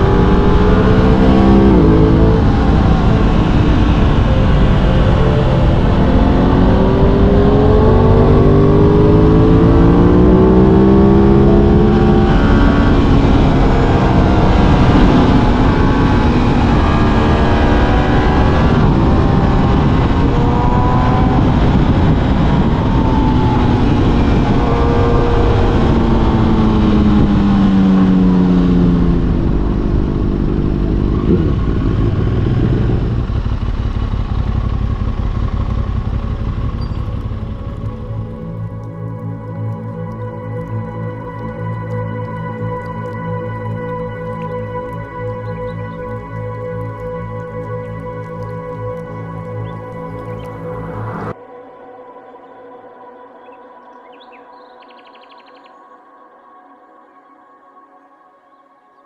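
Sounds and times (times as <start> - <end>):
rushing wind noise: 0.0 - 38.7
motorcycle engine accelerating: 0.0 - 51.4.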